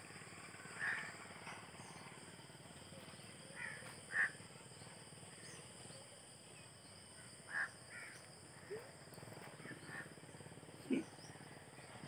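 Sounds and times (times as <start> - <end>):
bird calling: 9.5 - 10.2.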